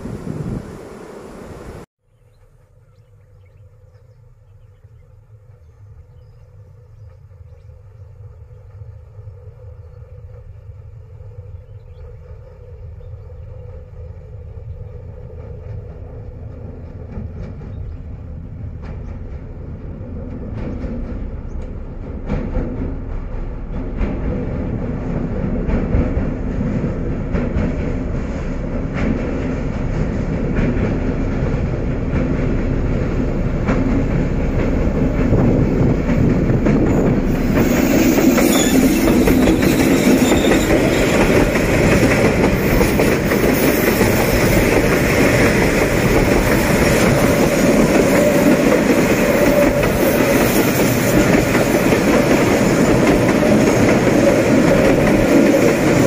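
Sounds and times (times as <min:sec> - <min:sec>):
locomotive rumble: 0:00.0 - 0:56.0
wagons rolling on rails: 0:15.4 - 0:56.0.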